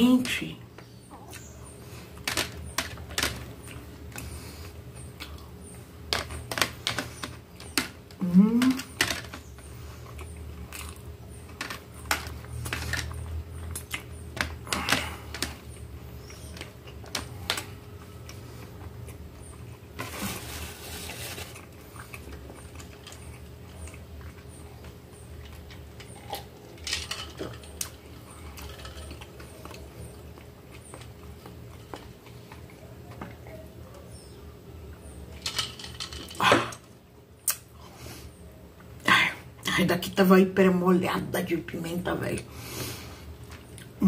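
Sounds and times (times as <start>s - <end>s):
steady low hum: 0.0s - 44.0s
wet chewing and mouth clicks: 1.1s - 2.4s, 8.8s - 14.6s.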